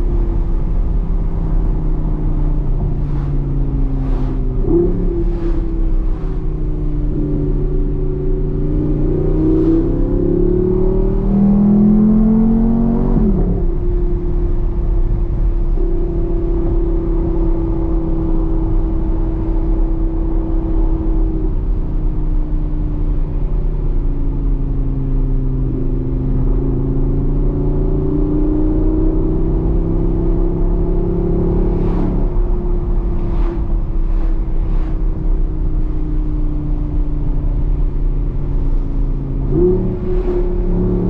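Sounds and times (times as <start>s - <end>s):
car engine drone from cabin: 0.0s - 41.0s
low road rumble: 0.0s - 41.0s.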